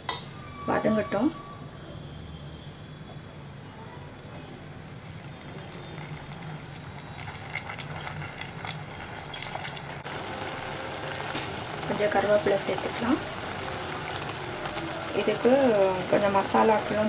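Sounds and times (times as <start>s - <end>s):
paste sizzling in oil: 4.6s - 17.0s.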